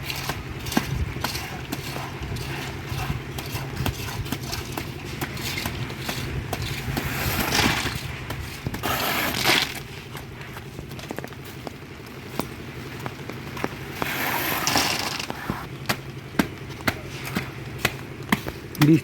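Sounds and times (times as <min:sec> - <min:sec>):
loud rushing scrapes: 0:00.0 - 0:10.1, 0:13.9 - 0:15.7.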